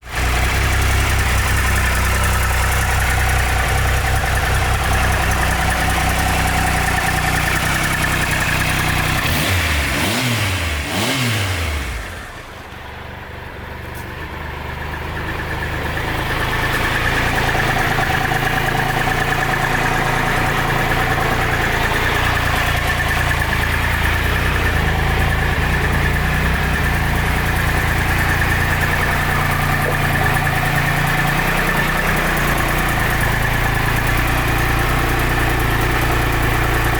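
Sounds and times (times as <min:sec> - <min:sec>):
motorcycle engine idling and revving: 0:00.0 - 0:36.9.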